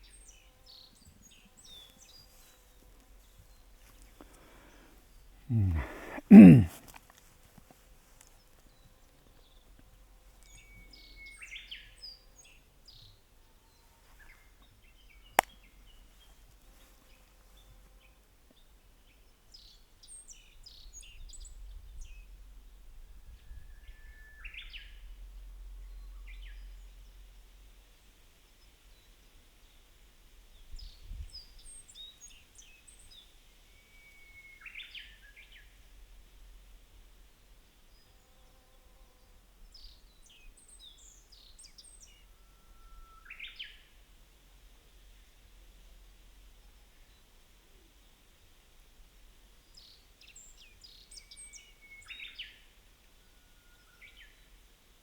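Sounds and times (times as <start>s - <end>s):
faint steady hiss: 25.0s - 55.0s.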